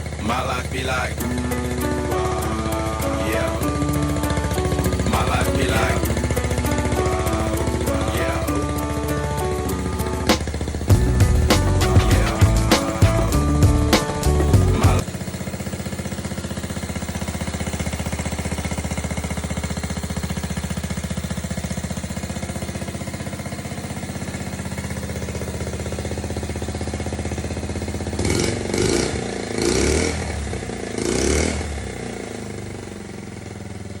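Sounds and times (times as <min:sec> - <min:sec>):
engine revving blips: 0:00.0 - 0:15.7, 0:28.0 - 0:33.1
small motorcycle engine idling: 0:00.0 - 0:34.0.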